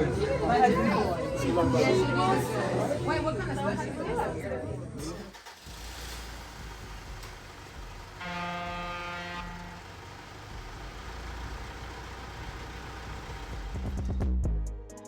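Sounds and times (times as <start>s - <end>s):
vehicle engines rumbling: 0.0s - 14.4s
vehicle horn: 8.0s - 10.3s.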